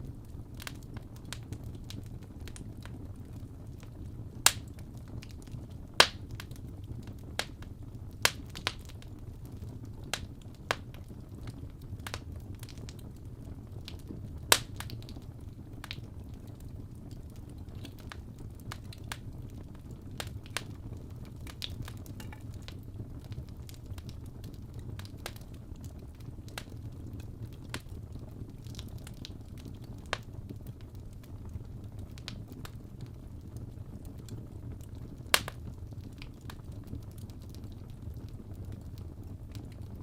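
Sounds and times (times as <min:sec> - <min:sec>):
fireplace crackling: 0:00.0 - 0:40.0
sharp pop of fire: 0:04.4 - 0:04.6, 0:06.0 - 0:06.3, 0:14.5 - 0:15.0, 0:35.4 - 0:35.6.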